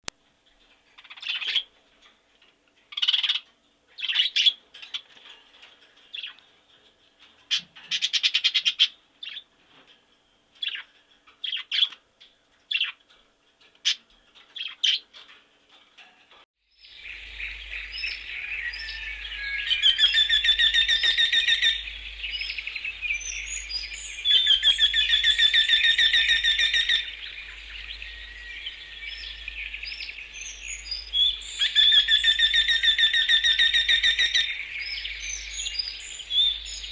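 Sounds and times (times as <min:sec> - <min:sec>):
long repeated bird trills: 0:16.8 - 0:36.9
birds chirping and calling: 0:17.0 - 0:36.9
faint steady hum: 0:17.0 - 0:36.9.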